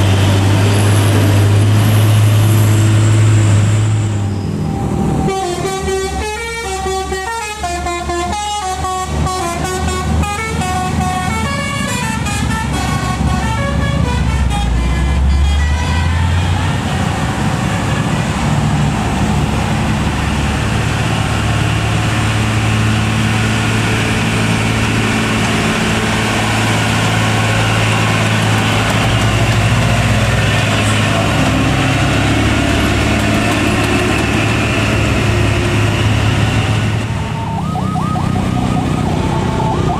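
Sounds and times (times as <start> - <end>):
truck diesel engine pulling uphill: 0.0 - 39.9
multi-note truck horn: 5.2 - 16.9.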